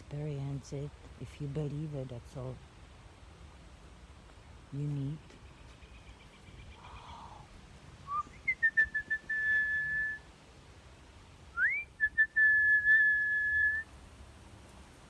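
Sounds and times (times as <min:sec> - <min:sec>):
person whistling: 0:08.1 - 0:10.2, 0:11.6 - 0:13.8.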